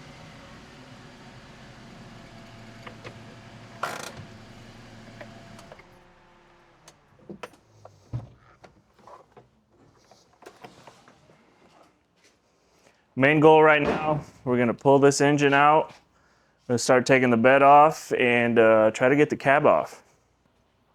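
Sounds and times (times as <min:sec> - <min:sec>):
small truck engine running: 0:00.0 - 0:07.3
sharp knock: 0:13.8 - 0:14.4.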